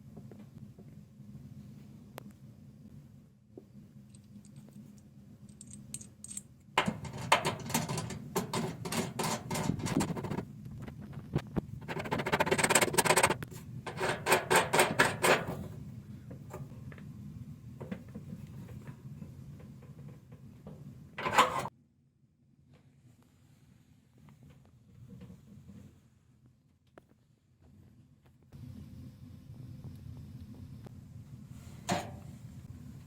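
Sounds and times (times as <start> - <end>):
low steady hum: 0.0 - 33.0
rapid clattering and rattling: 6.8 - 10.5, 11.8 - 15.6.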